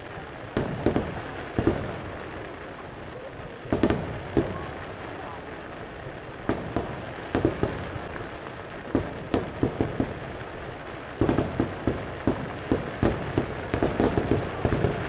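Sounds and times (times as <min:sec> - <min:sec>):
steady background hiss: 0:00.0 - 0:15.0
firework shells bursting: 0:06.4 - 0:08.2, 0:08.8 - 0:15.0.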